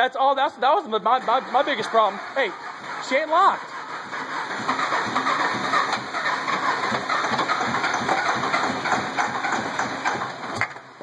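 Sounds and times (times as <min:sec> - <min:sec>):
truck engine cranking on starter: 0:00.8 - 0:11.0.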